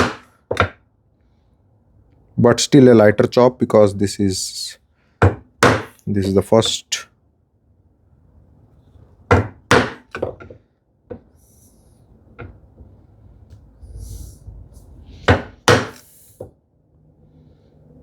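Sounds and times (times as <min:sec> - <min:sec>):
chisel knocks on wood: 0:05.2 - 0:06.0, 0:09.3 - 0:11.3, 0:15.3 - 0:16.0.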